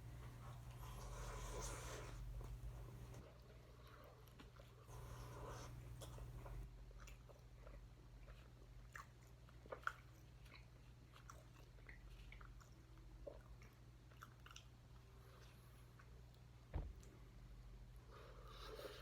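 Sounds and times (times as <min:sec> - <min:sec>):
person chewing food: 0:00.0 - 0:17.1.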